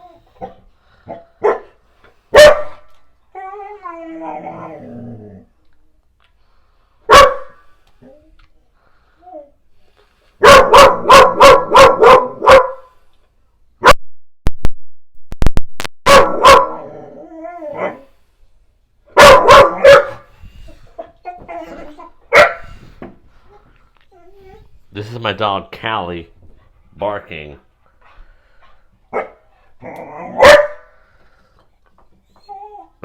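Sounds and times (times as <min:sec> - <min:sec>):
dog barking: 0:00.4 - 0:02.9, 0:07.1 - 0:07.6, 0:10.4 - 0:12.9, 0:16.1 - 0:16.9, 0:19.1 - 0:20.3, 0:22.3 - 0:22.7, 0:29.1 - 0:29.4, 0:30.3 - 0:30.9.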